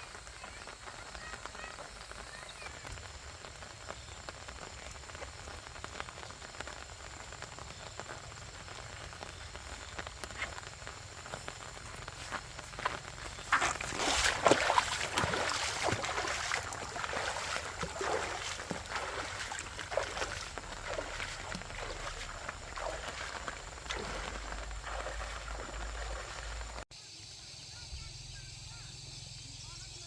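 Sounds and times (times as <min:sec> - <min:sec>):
faint chirping: 0:00.0 - 0:05.0, 0:07.1 - 0:30.0
dry plant material rustling: 0:09.3 - 0:26.8.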